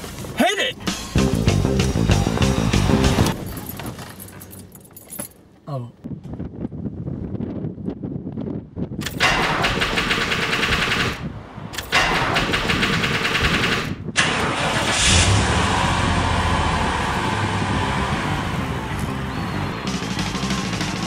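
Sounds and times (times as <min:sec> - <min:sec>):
car engine cranking: 0:11.8 - 0:19.2.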